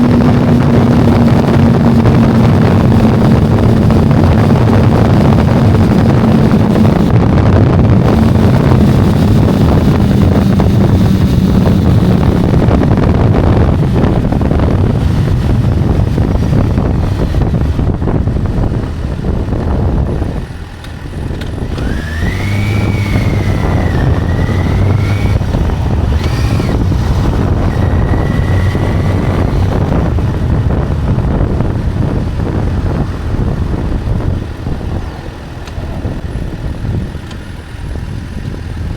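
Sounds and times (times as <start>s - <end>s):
wavering high whine: 0.0s - 7.2s, 8.0s - 13.7s, 21.8s - 30.1s
motorcycle engine drone: 0.0s - 38.9s
wind noise: 0.0s - 38.9s.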